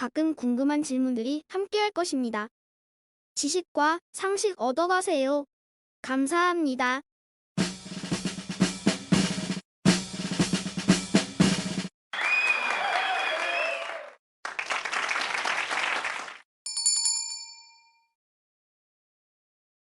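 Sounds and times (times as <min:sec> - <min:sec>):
snare drum roll: 0:07.6 - 0:11.9
cheering and applause: 0:12.1 - 0:16.4
bell ding: 0:16.7 - 0:18.2.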